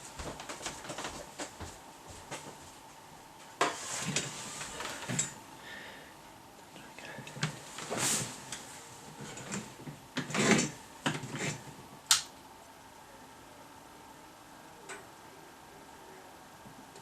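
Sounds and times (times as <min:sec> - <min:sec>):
scraping rustle: 0:02.2 - 0:05.4, 0:07.5 - 0:11.7
sharp click: 0:12.1 - 0:12.3.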